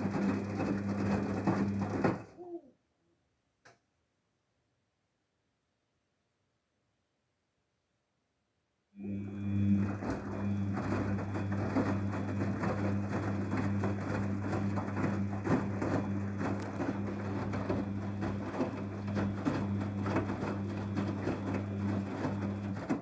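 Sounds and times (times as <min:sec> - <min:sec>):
washing machine hum: 0:00.0 - 0:02.6, 0:09.0 - 0:23.0
water and bubbles crackling: 0:09.5 - 0:23.0.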